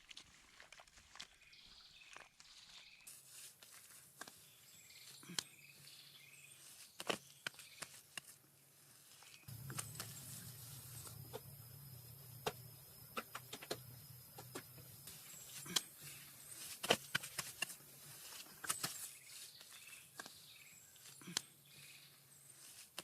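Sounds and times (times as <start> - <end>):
faint outdoor background: 0.3 - 23.0
faint bird chirps: 4.4 - 8.0, 9.2 - 17.4, 18.4 - 22.8
thin high insect-like note: 9.5 - 16.2.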